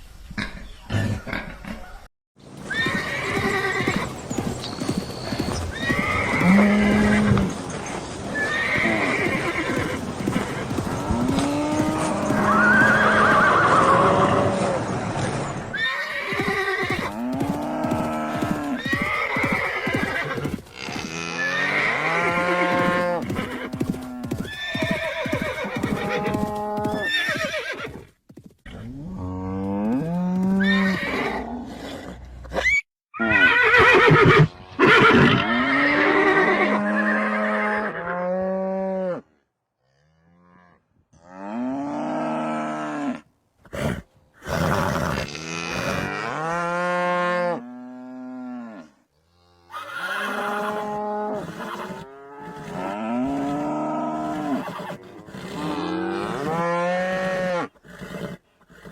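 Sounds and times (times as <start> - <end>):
horses neighing: 0.9 - 14.9, 15.7 - 28.0, 30.3 - 38.1, 49.6 - 58.9.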